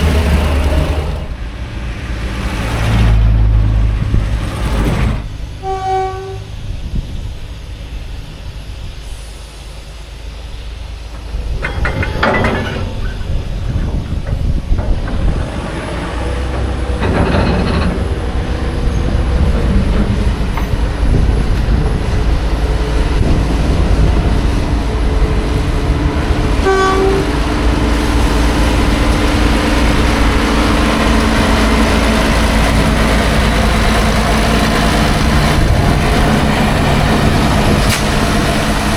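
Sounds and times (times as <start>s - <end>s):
heavy steam blasts: 0.0s - 38.9s
steam engine rumble: 0.0s - 38.9s
steam whistle toot: 5.6s - 6.5s, 26.6s - 27.4s.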